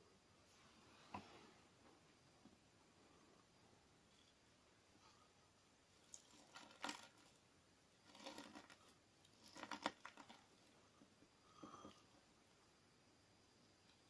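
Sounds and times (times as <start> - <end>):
slime with sand being squished: 5.7 - 11.2.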